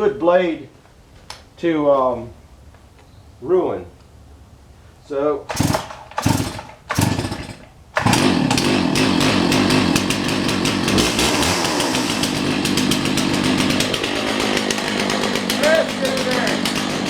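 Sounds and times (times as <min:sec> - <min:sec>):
chainsaw starting and running: 0:05.5 - 0:17.0.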